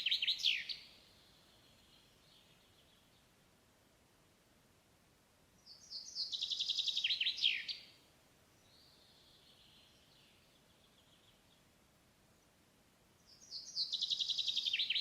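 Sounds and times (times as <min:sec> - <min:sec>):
songbird trilling: 0:00.0 - 0:00.8, 0:05.7 - 0:07.9, 0:13.4 - 0:15.0.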